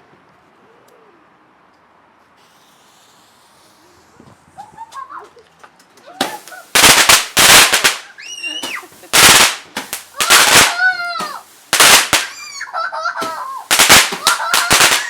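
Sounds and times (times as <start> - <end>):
fireworks bangs and crackling: 6.1 - 15.0.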